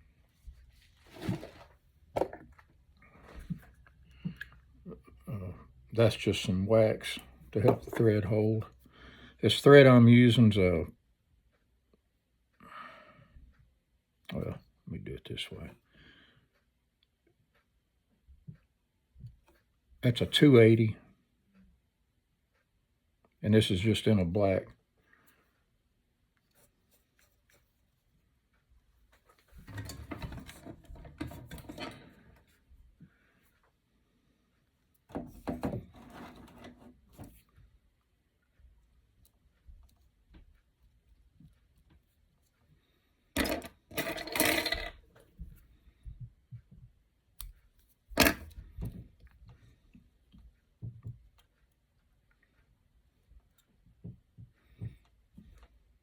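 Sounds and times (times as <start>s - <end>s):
tools knocking and clicking: 29.6s - 32.0s, 43.4s - 45.1s, 48.2s - 49.3s.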